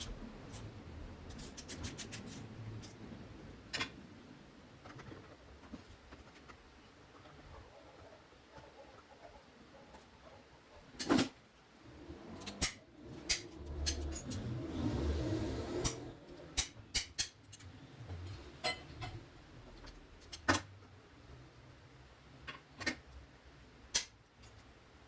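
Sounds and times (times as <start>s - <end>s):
hand tools and metal parts clinking: 12.2s - 15.0s.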